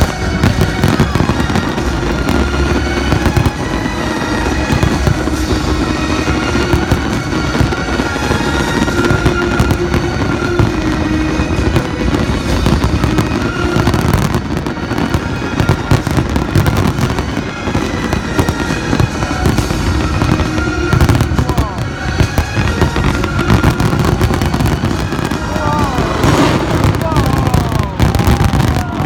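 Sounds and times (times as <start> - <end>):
fireworks bangs and crackles: 0.0 - 29.0
music playing: 0.0 - 29.0.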